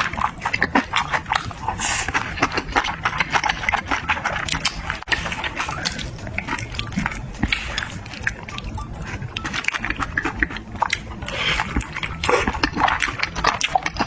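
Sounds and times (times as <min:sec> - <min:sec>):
hissy slurp: 0:00.0 - 0:02.6
wet chewing and crunching: 0:00.0 - 0:14.0.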